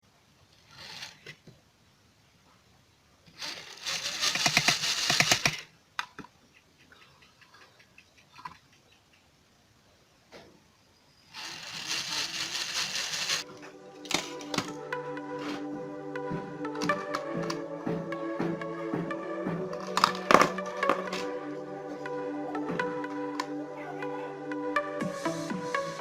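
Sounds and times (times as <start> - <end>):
small electric motor buzzing: 3.4 - 5.4, 11.3 - 13.4
faint clicks: 5.3 - 9.5.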